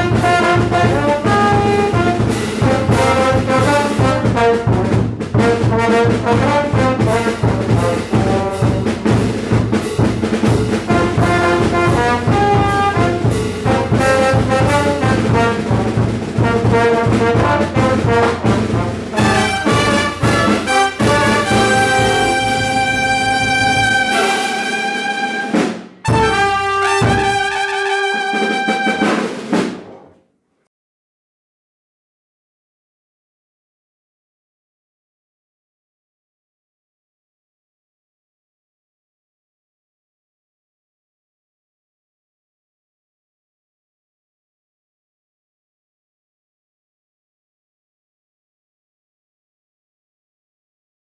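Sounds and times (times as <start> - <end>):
drums and bass beat: 0.0 - 29.7
brass band playing: 0.0 - 30.0.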